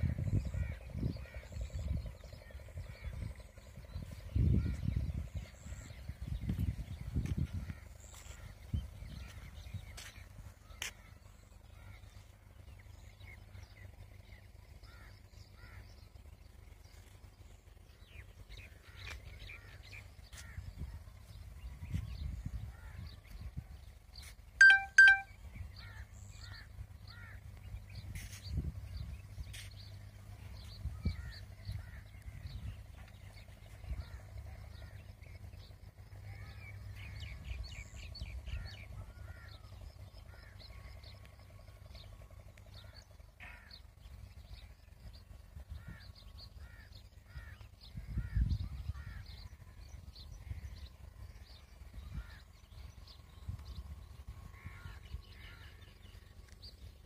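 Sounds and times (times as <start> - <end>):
low rumble: 0.0 - 24.2, 25.4 - 57.0
birds chirping: 0.0 - 57.0
crow cawing: 25.8 - 27.4, 43.4 - 43.8.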